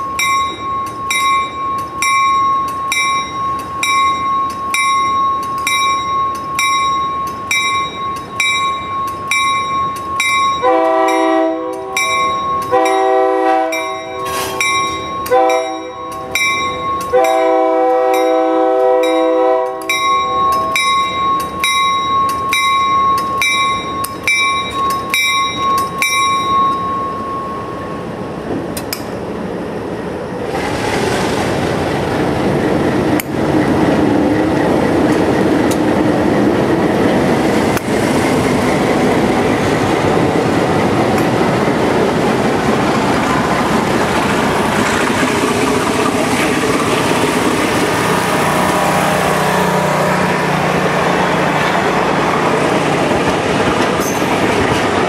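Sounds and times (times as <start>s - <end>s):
crossing bell ringing: 0.0s - 28.1s, 53.6s - 54.8s
train wheels rumbling on rails: 0.0s - 55.0s
multi-chime train horn: 10.4s - 21.4s.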